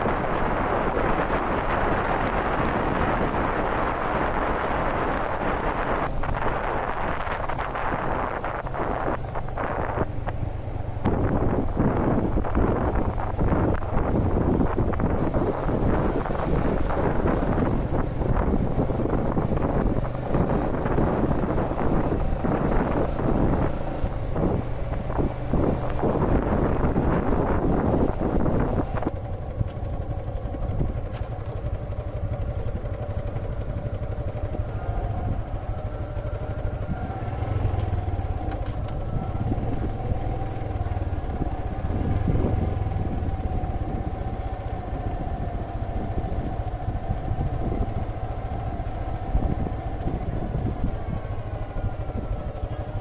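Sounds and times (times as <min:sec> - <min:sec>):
small engine running: 0:00.0 - 0:53.0.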